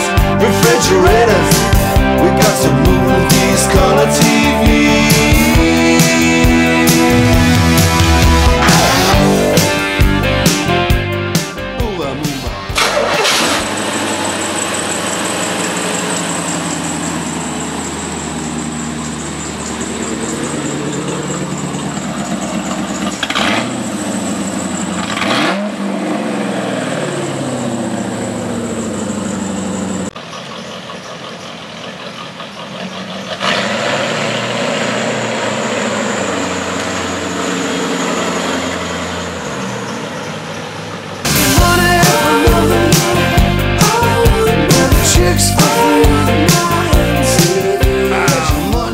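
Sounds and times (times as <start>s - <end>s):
engine revving: 0.0s - 30.9s, 31.6s - 48.9s.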